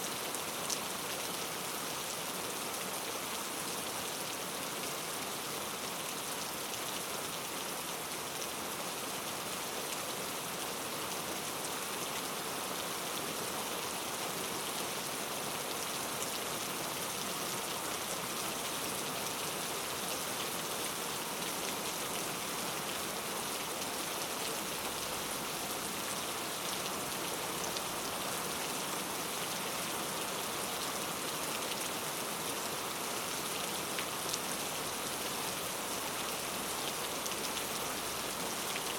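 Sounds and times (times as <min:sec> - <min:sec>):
rain pattering on leaves: 0:15.7 - 0:38.9.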